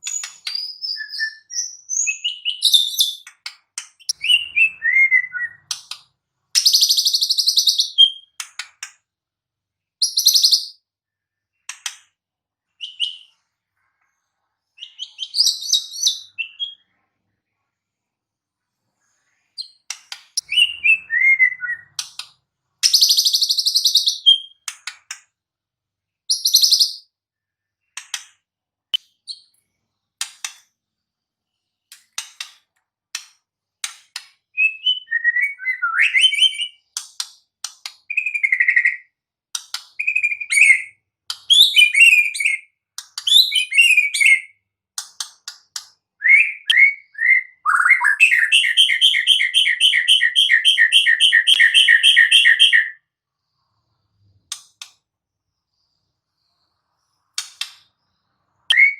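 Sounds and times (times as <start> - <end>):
bird singing whistles: 0.0 - 3.3, 4.0 - 5.8, 10.0 - 10.8, 12.8 - 13.3, 14.8 - 16.8, 20.4 - 22.0, 22.8 - 24.6, 26.3 - 27.1, 34.5 - 36.8, 38.1 - 39.1, 40.0 - 42.7, 43.3 - 44.6, 46.2 - 53.0, 58.7 - 58.9.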